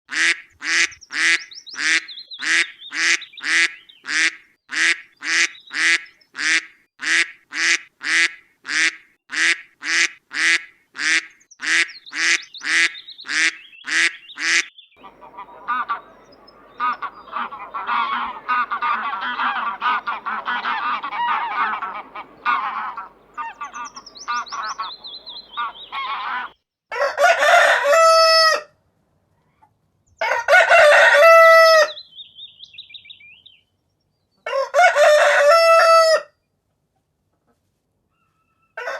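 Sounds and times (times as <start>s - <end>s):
ducks and geese calling: 0.1s - 26.6s
cockerel crowing: 14.4s - 28.7s, 30.2s - 32.0s, 34.5s - 36.3s, 38.3s - 38.9s.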